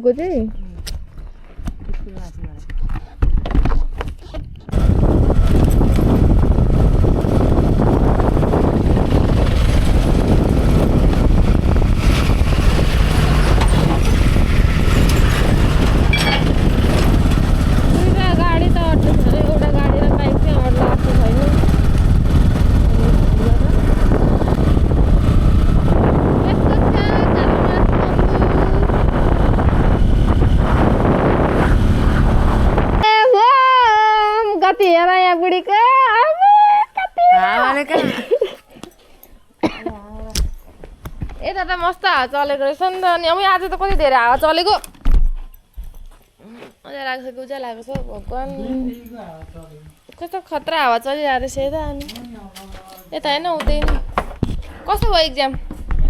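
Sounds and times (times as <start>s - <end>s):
wind buffeting microphone: 0.1s - 33.2s, 48.0s - 52.5s, 53.1s - 56.0s
motorcycle engine running: 4.7s - 33.0s
high-pitched voice: 26.5s - 29.0s.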